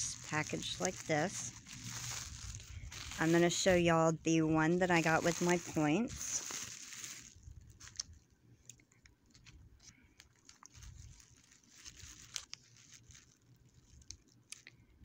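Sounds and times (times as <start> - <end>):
plastic crinkling and crackling: 0.0 - 15.0.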